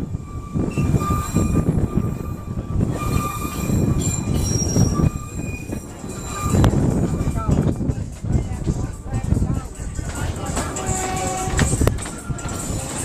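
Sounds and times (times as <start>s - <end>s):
high wheel squeals: 0.0s - 7.6s
wheels rumbling on track: 0.0s - 13.0s.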